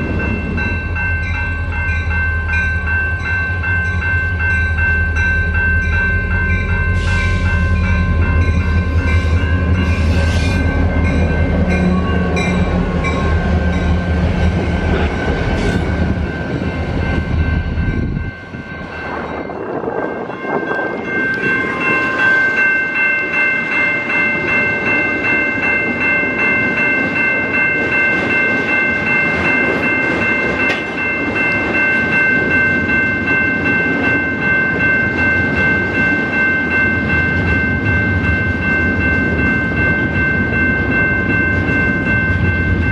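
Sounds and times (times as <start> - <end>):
diesel locomotive engine rumble: 0.0 - 42.9
railroad crossing bells ringing: 0.0 - 42.9
train wheels clattering: 27.8 - 32.6.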